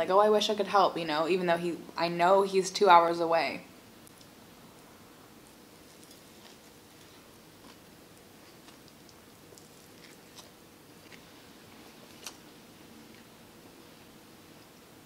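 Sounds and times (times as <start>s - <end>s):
soft chewing: 5.4s - 13.8s.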